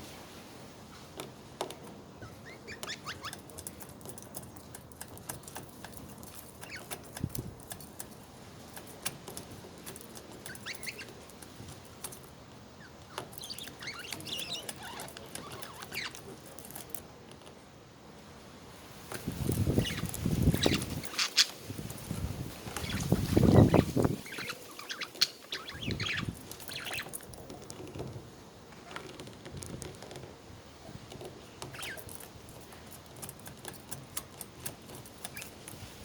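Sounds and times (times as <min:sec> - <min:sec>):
budgerigars chirping: 0:02.2 - 0:03.5, 0:06.6 - 0:07.1, 0:10.4 - 0:11.3, 0:12.8 - 0:16.2, 0:19.6 - 0:21.6, 0:22.7 - 0:27.2.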